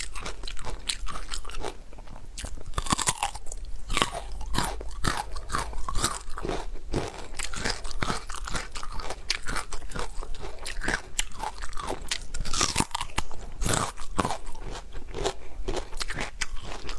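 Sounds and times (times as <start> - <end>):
person chewing crunchy food: 0.0 - 16.9.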